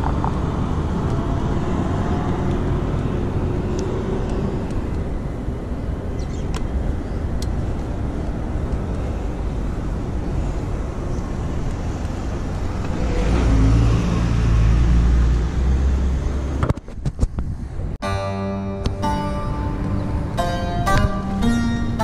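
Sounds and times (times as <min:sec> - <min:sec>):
vehicle passing close: 0:00.0 - 0:16.6
road traffic rushing: 0:00.0 - 0:22.0.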